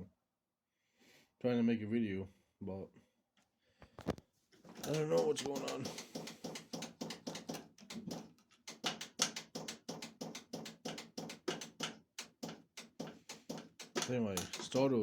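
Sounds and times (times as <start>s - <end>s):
starter solenoid clicking rapidly: 4.8s - 15.0s.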